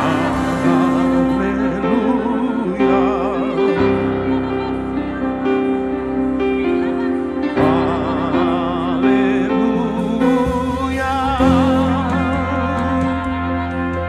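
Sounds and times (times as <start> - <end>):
deep bass note: 0.0 - 6.2
held chords: 0.0 - 14.0
person singing with vibrato: 0.0 - 14.0.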